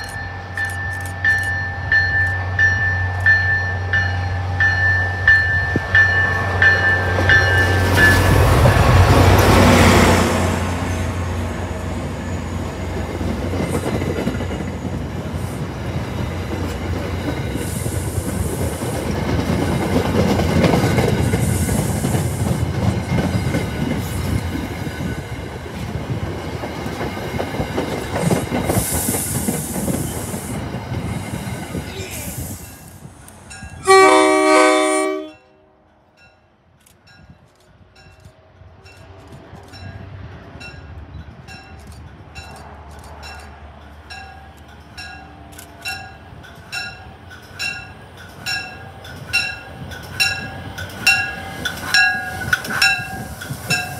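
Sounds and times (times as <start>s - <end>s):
locomotive engine passing: 0.0s - 31.9s
train wheels clacking on rails: 0.0s - 31.9s, 36.9s - 53.9s
train horn: 33.8s - 35.8s.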